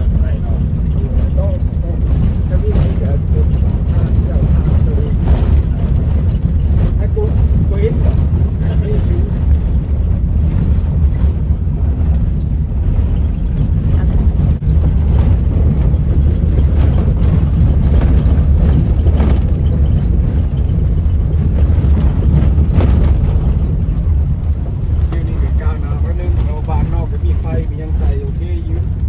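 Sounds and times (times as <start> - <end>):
vehicle engine and road rumble: 0.0 - 29.0.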